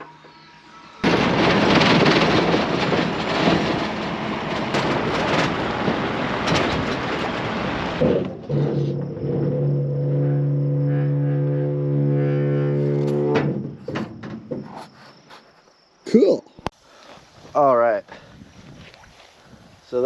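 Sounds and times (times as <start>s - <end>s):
loud rushing rumble: 1.0s - 8.4s.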